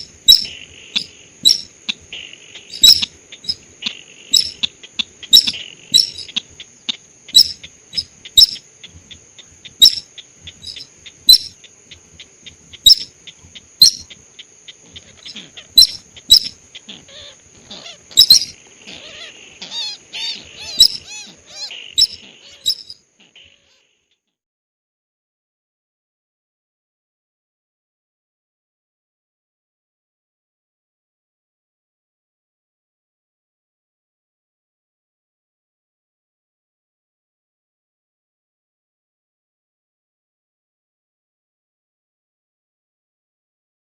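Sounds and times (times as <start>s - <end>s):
bird chirps: 0.0s - 24.2s.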